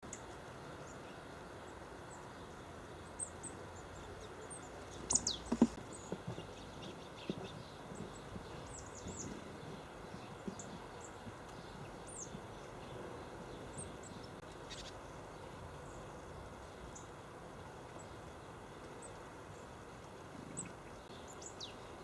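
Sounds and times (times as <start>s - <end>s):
songbirds calling: 0.0s - 22.0s
steady background hiss: 0.0s - 22.0s
sharp knocks and taps: 5.1s - 6.5s.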